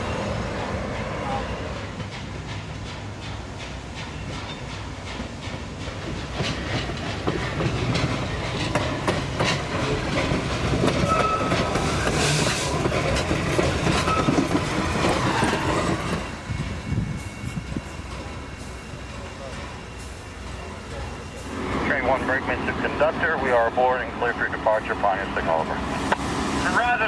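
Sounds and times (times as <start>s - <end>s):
train wheels clacking over rail joints: 1.8s - 21.8s.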